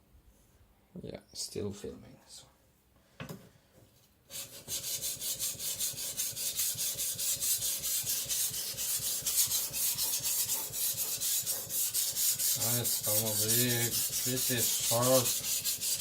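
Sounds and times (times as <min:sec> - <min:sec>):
cleaver scraping on whetstone: 0:04.4 - 0:16.0.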